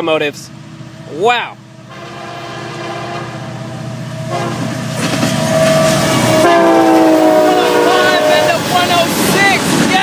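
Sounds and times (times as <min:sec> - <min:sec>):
train engine rumble: 0:00.0 - 0:10.0
train horn chord: 0:01.9 - 0:03.7, 0:04.3 - 0:04.8, 0:06.2 - 0:08.6.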